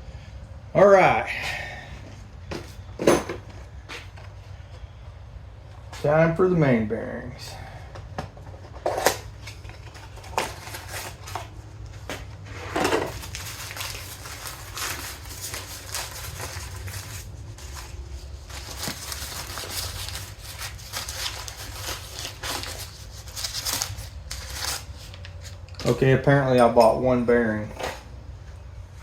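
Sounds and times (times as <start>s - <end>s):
steady low hum: 0.0s - 29.0s
plastic packaging crinkling: 8.9s - 12.1s, 12.7s - 26.2s.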